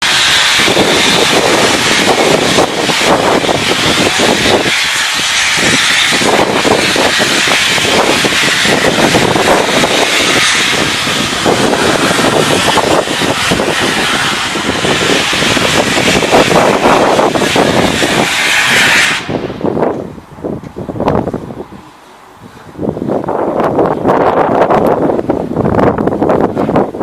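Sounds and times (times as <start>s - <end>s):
steam locomotive hissing: 0.0s - 20.0s.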